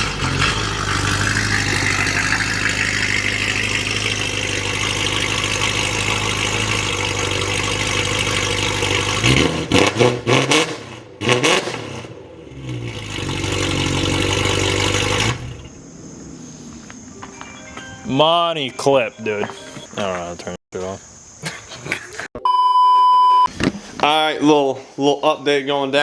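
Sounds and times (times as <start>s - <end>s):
car engine idling and revving: 0.0s - 17.3s.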